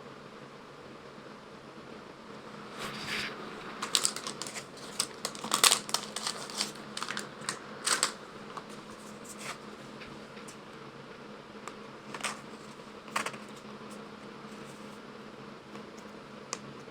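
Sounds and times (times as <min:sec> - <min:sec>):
cardboard box and cards handled: 0:03.8 - 0:09.6, 0:12.1 - 0:13.7.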